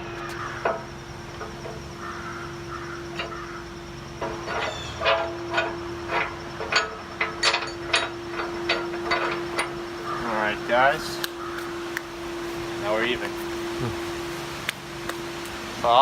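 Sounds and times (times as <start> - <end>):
steady hum: 0.0 - 16.0
sharp metal knocks: 0.2 - 12.1.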